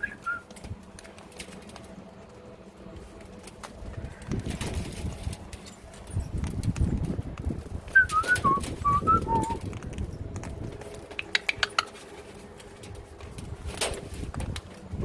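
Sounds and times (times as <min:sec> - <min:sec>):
birds whistling and chirping: 0:00.0 - 0:00.5, 0:07.9 - 0:09.7.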